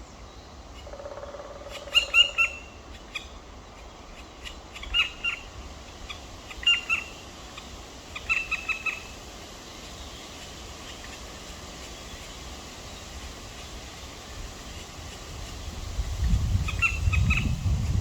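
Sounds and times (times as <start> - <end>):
woodpecker chicks calling: 0.7 - 9.1, 16.2 - 18.0
steady hiss: 2.6 - 18.0.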